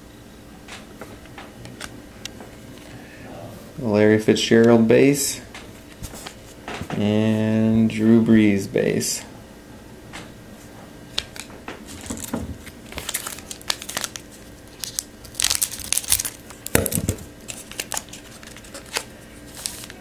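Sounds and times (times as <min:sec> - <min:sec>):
foil wrapper tearing and crinkling: 0:11.2 - 0:20.0.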